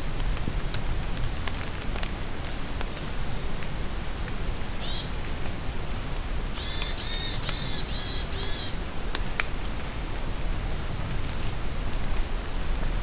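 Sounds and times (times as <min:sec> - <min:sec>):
rain falling in forest: 0:00.0 - 0:13.0
bird calling: 0:02.9 - 0:03.6, 0:04.8 - 0:05.2, 0:06.5 - 0:08.8.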